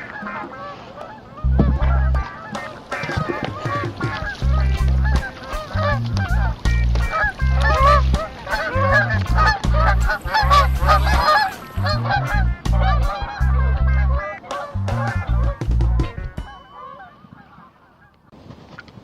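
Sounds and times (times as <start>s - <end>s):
geese honking: 0.0s - 18.9s
music with pulsing bass: 1.5s - 2.3s, 4.0s - 16.5s.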